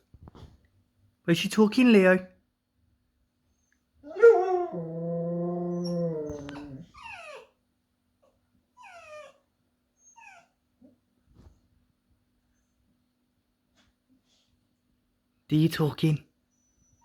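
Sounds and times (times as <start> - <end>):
dog howling: 4.0 - 7.4
dog whining: 4.0 - 7.6, 8.8 - 10.6.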